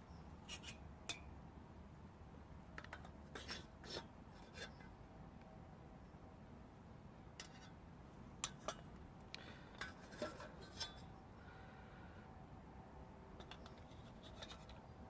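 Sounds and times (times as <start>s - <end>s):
camp cookware clicking and rubbing: 0.5s - 1.2s, 2.8s - 4.9s, 7.4s - 7.8s, 8.4s - 9.0s, 9.8s - 11.2s, 13.4s - 15.0s.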